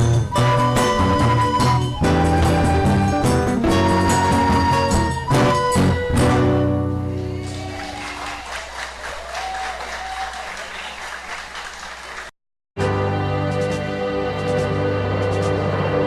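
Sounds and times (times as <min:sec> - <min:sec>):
live music: 0:00.0 - 0:08.6, 0:12.8 - 0:16.0
audience applause: 0:07.1 - 0:12.3
audience voices: 0:07.1 - 0:12.3.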